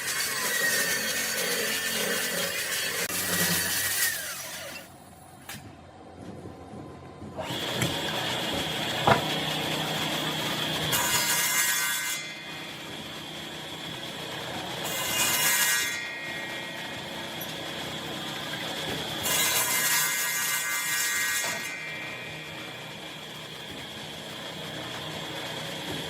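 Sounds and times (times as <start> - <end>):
power tool cutting wood: 0.0 - 4.9, 7.4 - 26.0
sharp knock: 9.1 - 9.3.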